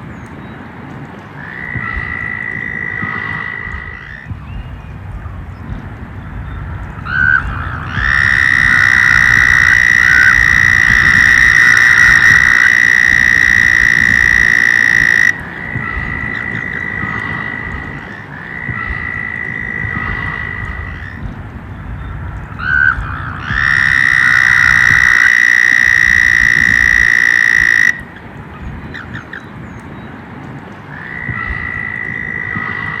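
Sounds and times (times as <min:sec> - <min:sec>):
frogs trilling: 0:01.3 - 0:04.4, 0:06.2 - 0:21.3, 0:22.4 - 0:28.2, 0:30.9 - 0:33.0.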